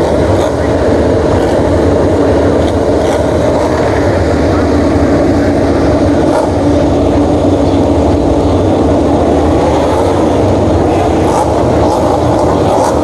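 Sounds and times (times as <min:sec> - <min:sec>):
racing motorcycle engines at high revs: 0:00.0 - 0:13.0.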